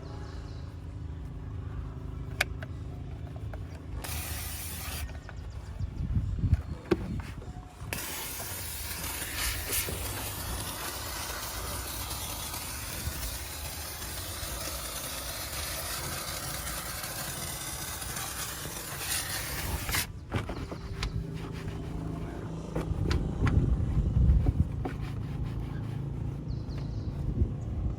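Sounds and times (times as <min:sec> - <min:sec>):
steam cleaner jet hissing: 0:04.0 - 0:05.1, 0:07.9 - 0:20.1.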